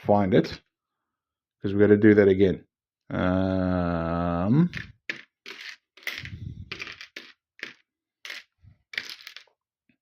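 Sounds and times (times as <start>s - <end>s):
plastic bricks clattering: 4.7s - 9.6s.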